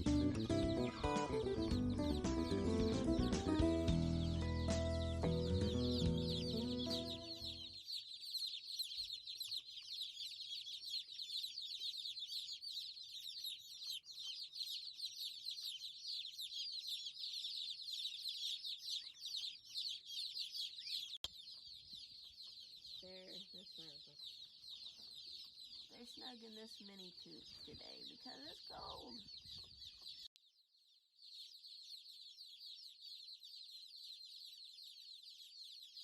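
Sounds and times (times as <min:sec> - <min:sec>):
background music: 0:00.0 - 0:07.7
chicks peeping: 0:00.0 - 0:36.0.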